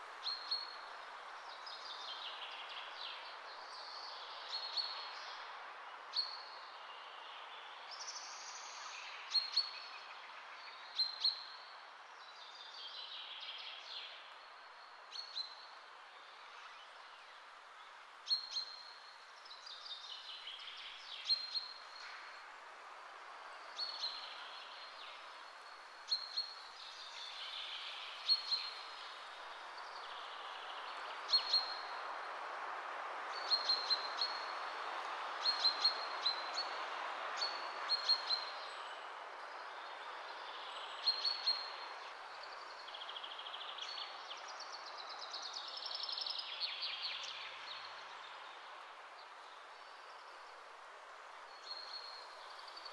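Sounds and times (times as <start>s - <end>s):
steady background hiss: 0.0s - 52.9s.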